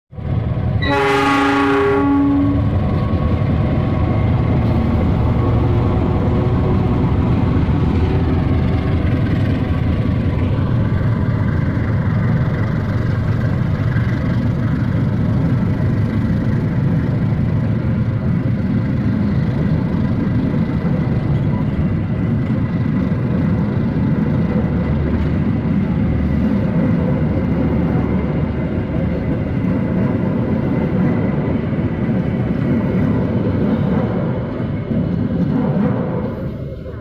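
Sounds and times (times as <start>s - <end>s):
locomotive engine running: 0.2s - 37.0s
locomotive horn: 0.8s - 2.7s.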